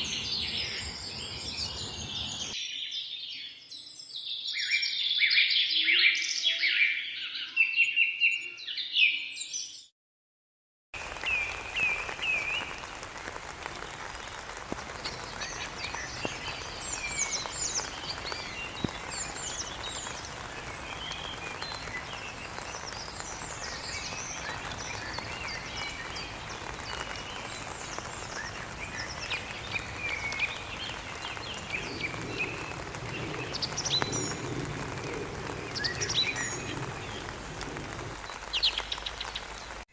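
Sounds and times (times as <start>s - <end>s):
small birds chirping: 0.0s - 5.4s, 11.2s - 39.8s.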